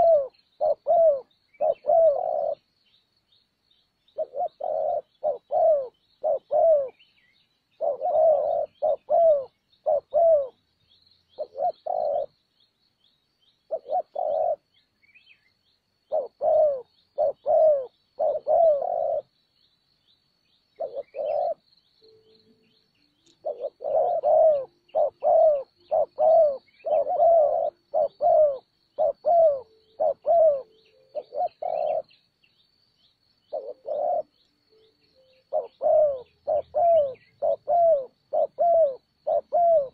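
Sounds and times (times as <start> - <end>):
dove cooing: 0.0 - 2.7, 4.1 - 7.1, 7.7 - 10.6, 11.3 - 12.4, 13.7 - 14.7, 16.0 - 19.4, 20.8 - 22.4, 23.2 - 32.3, 33.4 - 39.9.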